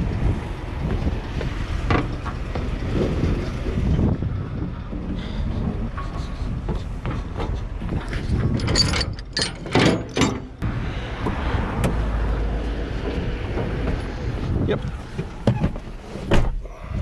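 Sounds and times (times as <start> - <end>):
vehicle engine rumbling: 0.0 - 17.0
sharp metallic clatters and knocks: 5.9 - 10.6.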